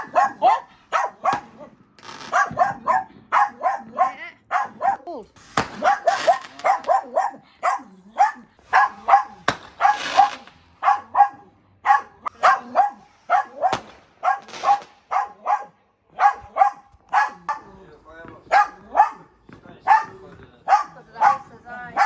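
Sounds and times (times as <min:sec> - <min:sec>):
dog barking: 0:00.0 - 0:05.1, 0:05.8 - 0:17.8, 0:18.5 - 0:22.0.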